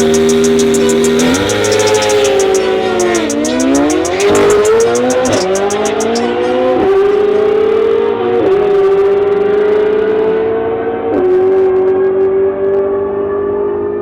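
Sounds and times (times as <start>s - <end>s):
engine at full throttle upshifting: 0.0s - 11.1s.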